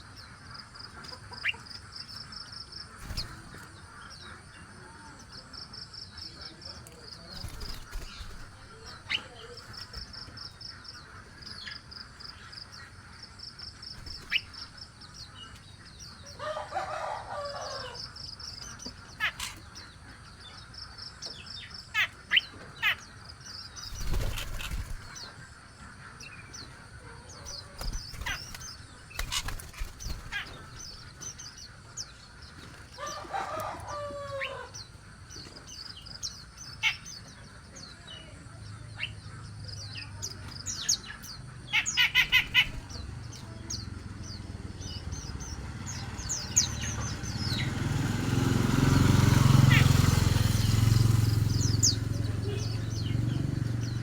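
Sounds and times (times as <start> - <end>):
small birds chirping: 0.0 - 54.0
wings flapping: 3.0 - 3.8, 7.2 - 10.4, 13.9 - 14.8, 23.8 - 25.6, 26.7 - 31.6, 42.0 - 43.0.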